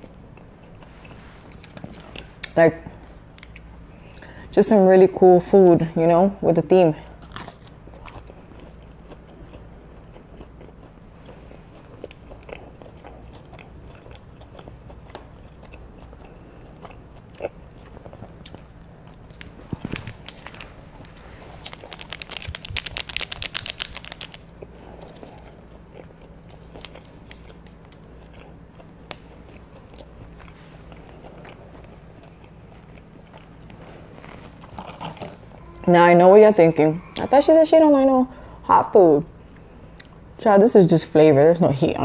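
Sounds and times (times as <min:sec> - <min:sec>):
chewing: 0:00.0 - 0:04.3, 0:07.0 - 0:35.9
rapid crunching: 0:07.3 - 0:35.5.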